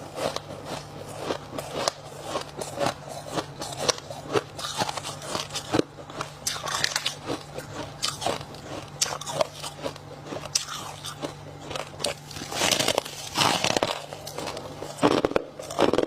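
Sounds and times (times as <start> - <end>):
ice crunching being chewed: 0.0 - 16.0.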